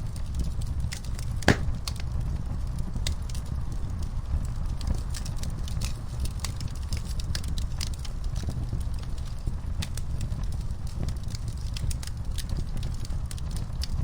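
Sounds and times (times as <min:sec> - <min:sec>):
wood fire crackling: 0:01.4 - 0:02.0.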